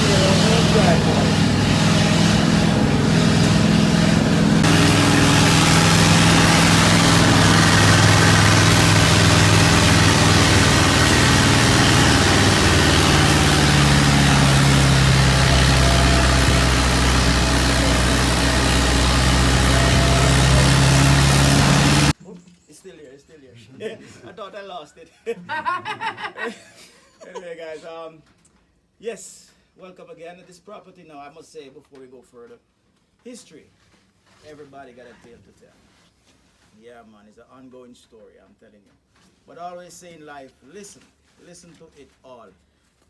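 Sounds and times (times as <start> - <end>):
rushing noise of travel: 0.0 - 22.2
vehicle engine running: 0.0 - 22.2.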